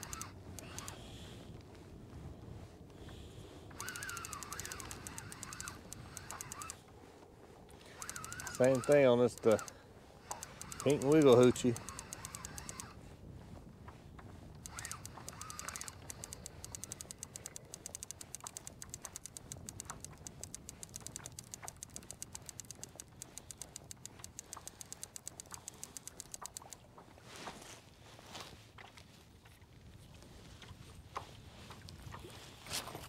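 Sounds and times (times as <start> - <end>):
fishing reel ticking: 0.0 - 2.2, 3.0 - 6.9, 7.7 - 26.9.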